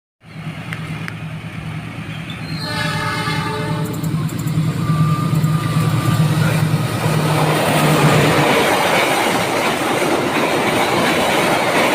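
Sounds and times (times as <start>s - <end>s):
diesel locomotive engine humming: 0.2s - 11.9s
locomotive horn: 2.6s - 4.2s.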